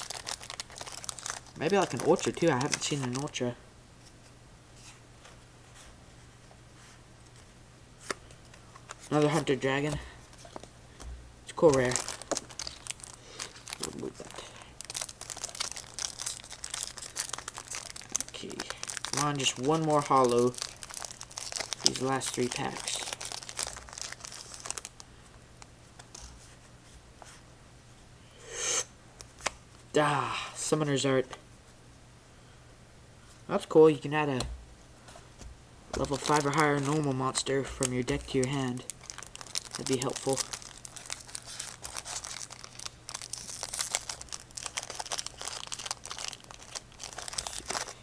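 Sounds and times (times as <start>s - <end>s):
foil wrapper crinkling and tearing: 0.0s - 3.4s, 8.8s - 10.7s, 11.5s - 25.1s, 36.0s - 48.0s.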